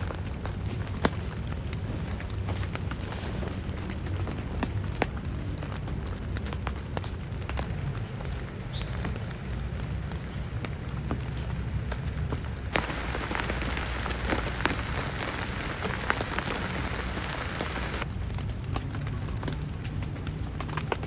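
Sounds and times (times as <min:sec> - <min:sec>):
raindrops ticking on a surface: 0:00.0 - 0:21.0
heavy rain falling: 0:03.6 - 0:18.4.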